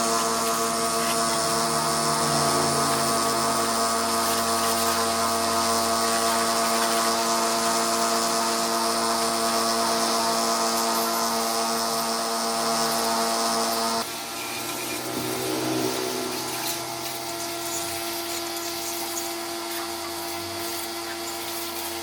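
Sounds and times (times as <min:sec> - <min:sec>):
power tool motor whine: 0:00.0 - 0:22.0
hiss: 0:13.7 - 0:22.0.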